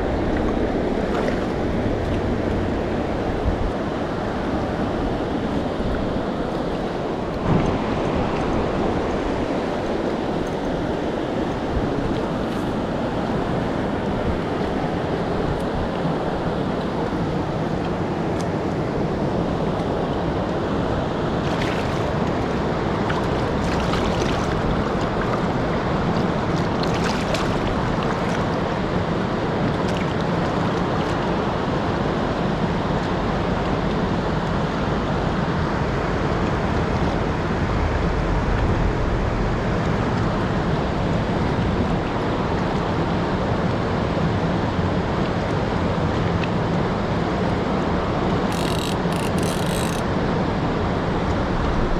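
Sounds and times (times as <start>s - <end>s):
river water rushing: 0.0s - 18.3s, 19.0s - 31.8s.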